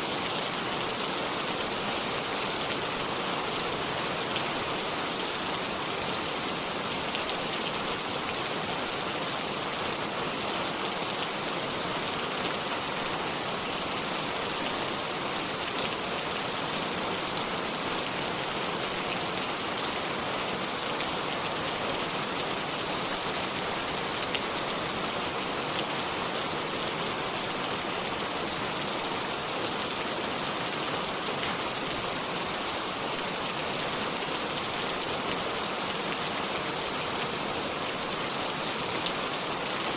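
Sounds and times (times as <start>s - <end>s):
rain on leaves: 0.0s - 39.9s.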